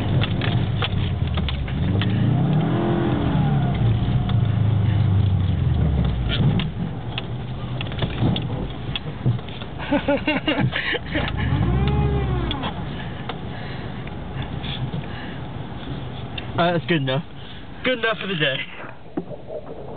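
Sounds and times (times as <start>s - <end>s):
car engine revving: 0.0s - 7.0s, 11.2s - 13.1s.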